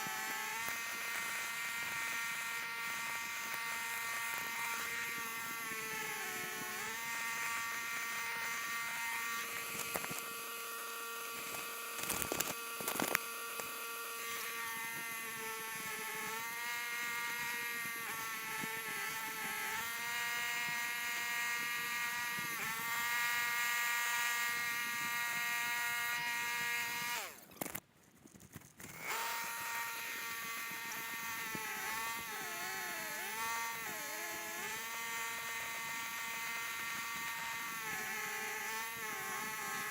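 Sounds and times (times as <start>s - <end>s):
small motor whining: 0.0s - 39.9s
sharp clicks: 9.5s - 10.3s.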